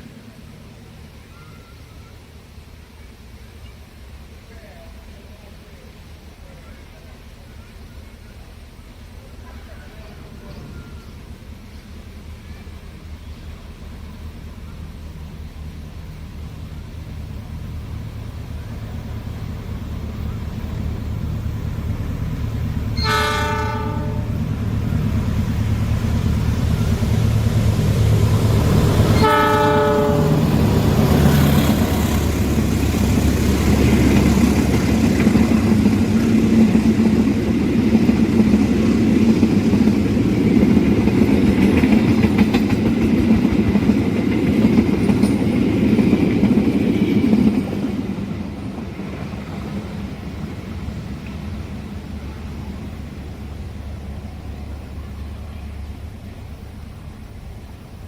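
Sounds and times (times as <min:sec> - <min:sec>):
carriages rolling on rails: 0:00.0 - 0:58.0
train engine noise: 0:00.0 - 0:58.0
train horn blasts: 0:23.0 - 0:24.5, 0:29.0 - 0:30.7.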